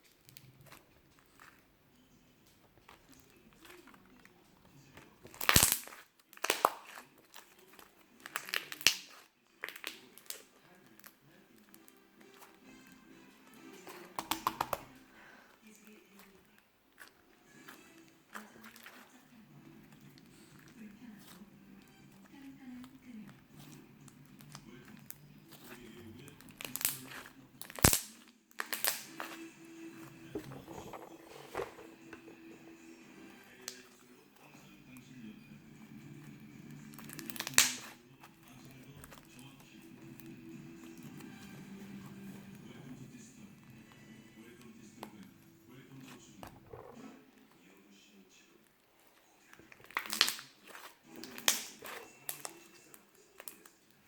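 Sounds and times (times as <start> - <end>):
faint background noise: 0.0 - 54.0
slime crackling in hands: 2.7 - 12.7, 13.4 - 30.5, 36.1 - 42.6, 49.0 - 53.8
loud sharp slime pop: 5.3 - 7.0, 14.2 - 14.9, 26.7 - 29.3, 37.2 - 38.0.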